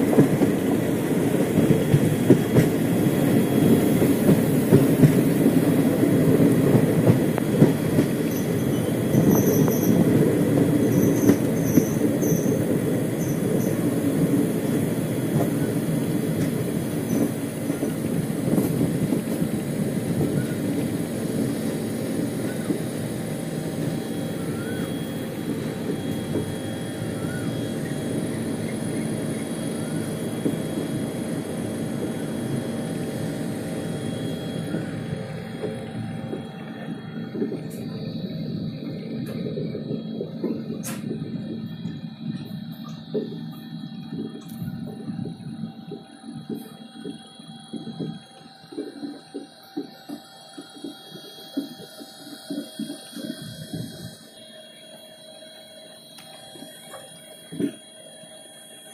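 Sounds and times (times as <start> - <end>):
train wheels rumbling on rails: 0.0 - 58.9.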